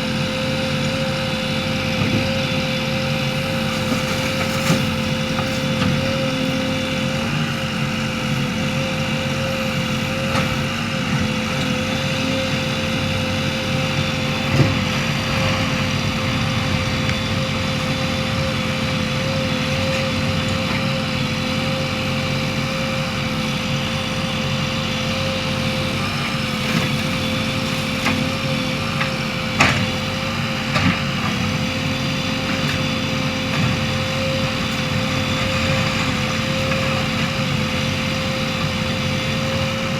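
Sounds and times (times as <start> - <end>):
steady whine: 0.0 - 30.6
diesel engine running: 0.0 - 39.9.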